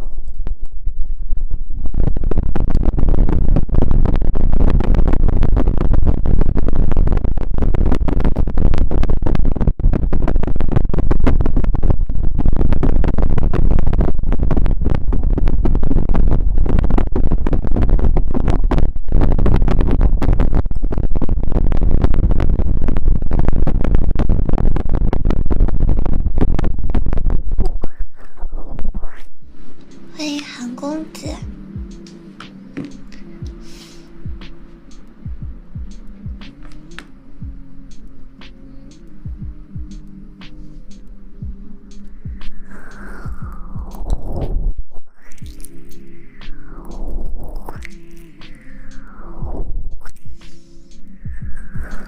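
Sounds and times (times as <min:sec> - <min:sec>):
rustling and scratching on microphone: 0:00.0 - 0:22.4, 0:32.8 - 0:34.1.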